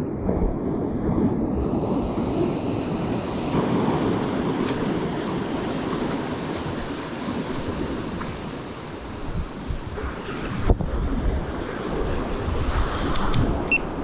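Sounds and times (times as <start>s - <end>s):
surf breaking on beach: 0.0s - 14.0s
wind buffeting microphone: 0.0s - 14.0s.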